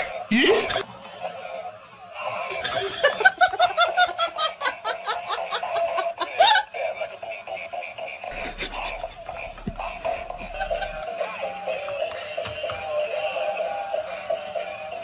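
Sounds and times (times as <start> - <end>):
person laughing hard: 2.4 - 6.9, 8.2 - 11.2.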